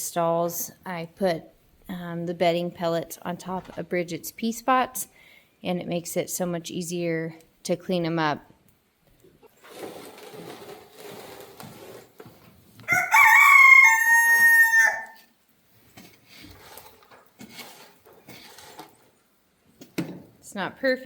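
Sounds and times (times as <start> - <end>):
faint scraping and shuffling: 9.1 - 12.9, 15.2 - 19.4
rooster crowing: 12.9 - 15.3.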